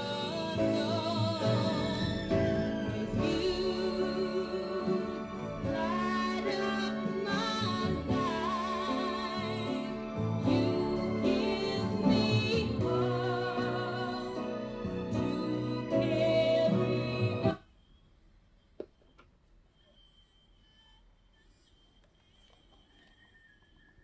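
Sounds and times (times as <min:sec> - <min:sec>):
vinyl record music with singing: 0:00.0 - 0:17.8.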